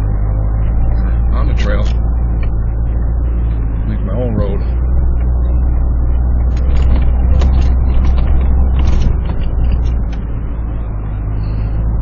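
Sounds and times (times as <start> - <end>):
engine running at low revs: 0.0 - 12.0
tyres crackling through snow: 6.4 - 11.7.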